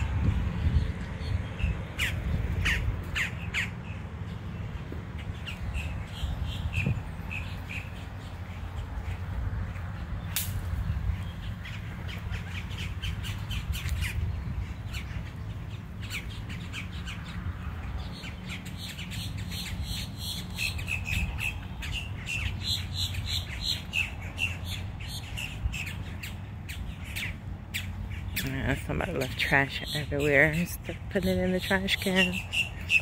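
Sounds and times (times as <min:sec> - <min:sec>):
steady low rumble: 0:00.0 - 0:18.6
birds calling: 0:00.0 - 0:33.0.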